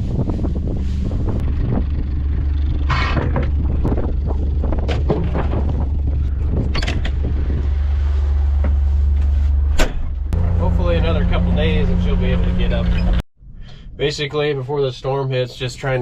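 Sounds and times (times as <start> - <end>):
vehicle engine rumbling: 0.0 - 16.0
knocks and rattles: 1.5 - 7.7.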